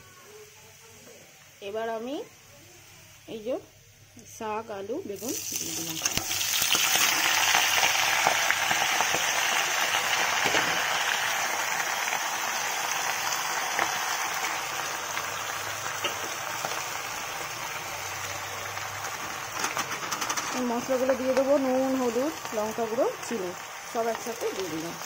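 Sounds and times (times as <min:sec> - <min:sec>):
hot oil sizzling: 0:00.0 - 0:25.0.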